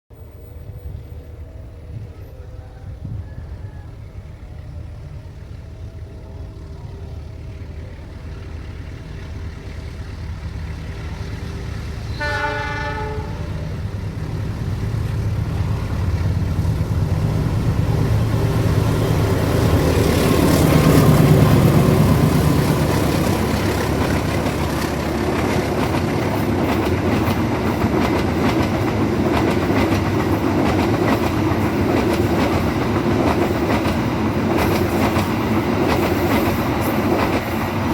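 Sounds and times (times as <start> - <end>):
diesel locomotive engine hum: 0.1 - 37.9
wheels clacking on rail joints: 6.8 - 37.9
train horn: 10.9 - 14.0.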